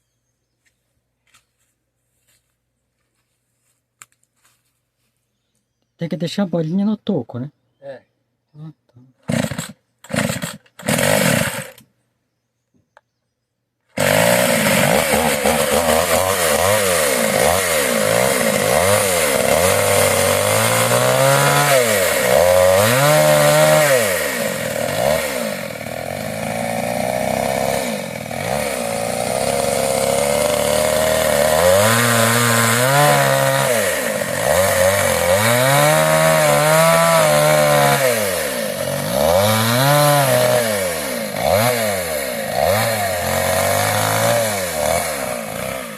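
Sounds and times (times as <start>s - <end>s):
chainsaw cutting wood: 9.2s - 11.9s, 13.9s - 45.9s.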